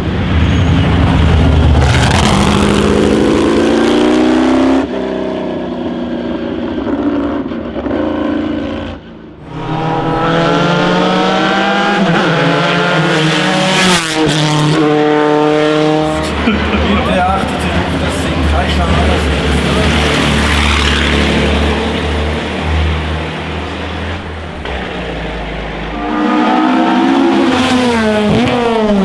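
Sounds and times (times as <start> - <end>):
racing car engine accelerating: 7.4 - 29.0.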